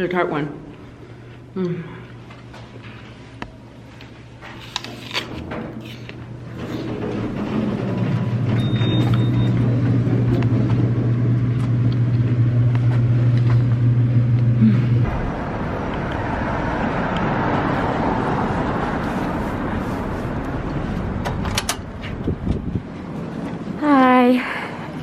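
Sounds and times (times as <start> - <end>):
road rumble: 5.4 - 25.0
car engine drone: 8.6 - 24.2.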